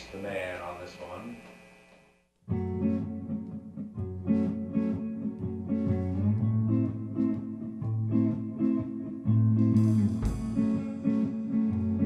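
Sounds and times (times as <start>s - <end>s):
guitar riff: 2.5s - 12.0s
bass line: 9.3s - 12.0s.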